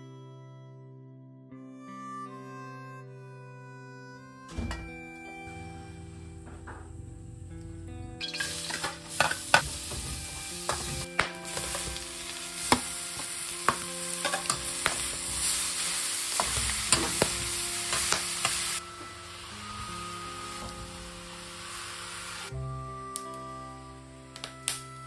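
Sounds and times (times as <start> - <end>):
vegetables sizzling in hot oil: 8.2 - 22.5
metal spatula clinking on pan: 13.7 - 15.3.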